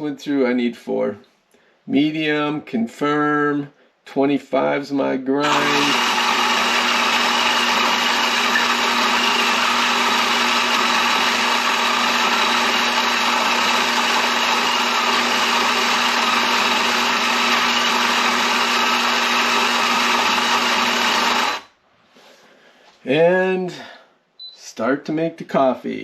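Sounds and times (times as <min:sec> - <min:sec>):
coffee grinder whirring: 0:05.4 - 0:21.7.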